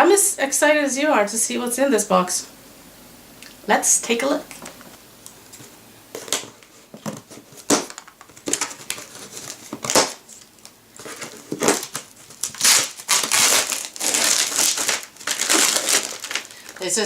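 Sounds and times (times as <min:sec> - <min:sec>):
packing material rustling: 0:05.5 - 0:17.0.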